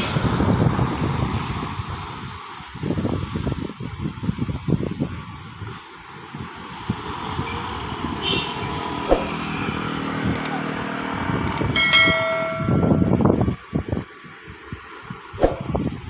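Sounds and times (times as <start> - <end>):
vehicle engine under load: 5.6 - 13.5
vehicle horn: 8.2 - 8.7.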